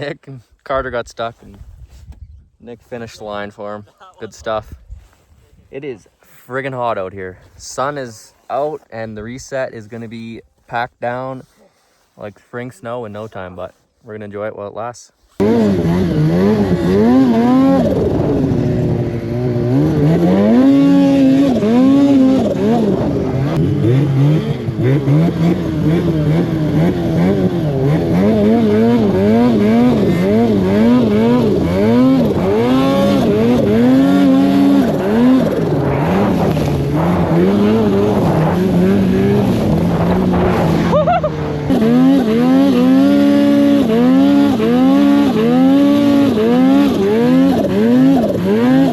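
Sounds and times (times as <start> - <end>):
snowmobile engine revving: 15.4 - 48.9.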